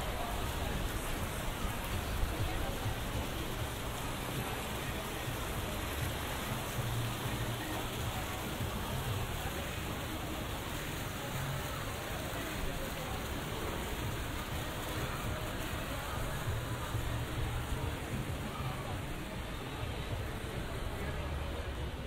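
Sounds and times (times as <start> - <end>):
faint people's voices: 0.0 - 22.0
rain spattering on pavement: 0.0 - 22.0.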